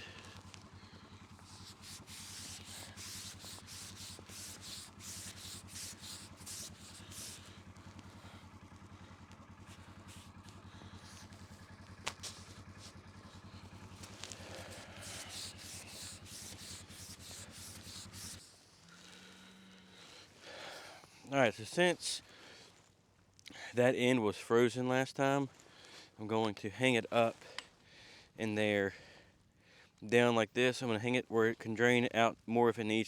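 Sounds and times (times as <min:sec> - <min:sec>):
footsteps crunching through snow: 0:00.0 - 0:19.4
faint low hum: 0:00.0 - 0:31.4.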